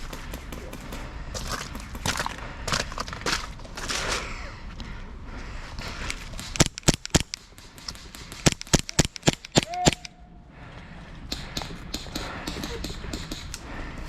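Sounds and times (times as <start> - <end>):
airsoft guns firing: 0.0 - 3.3, 6.2 - 10.1, 11.3 - 13.7.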